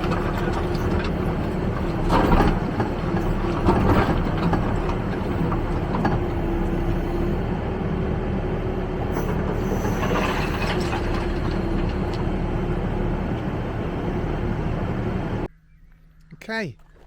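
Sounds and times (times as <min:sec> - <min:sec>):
rubble rattling in bucket: 0:00.0 - 0:06.6, 0:09.5 - 0:12.7
diesel engine under load: 0:00.0 - 0:15.5.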